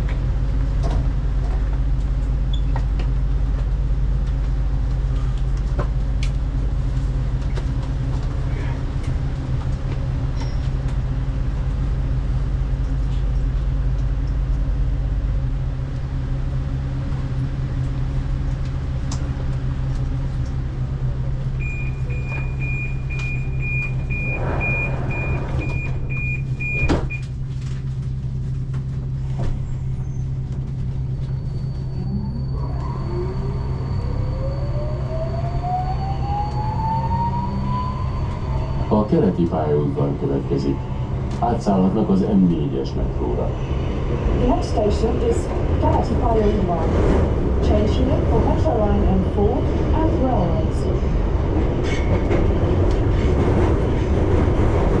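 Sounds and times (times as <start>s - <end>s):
metro train humming: 0.0s - 55.0s
high door-warning beep: 21.6s - 27.2s
train doors shutting: 21.6s - 27.4s.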